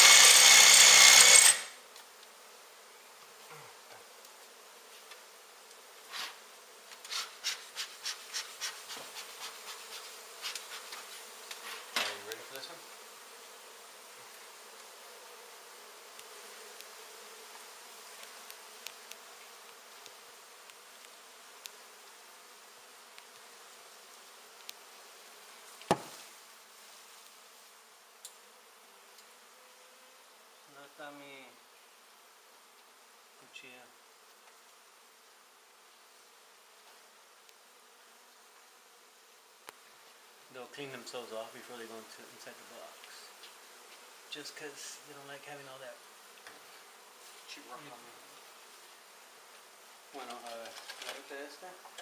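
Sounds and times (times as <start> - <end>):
bees buzzing: 0.0 - 52.0
sharp knocks: 25.9 - 26.2.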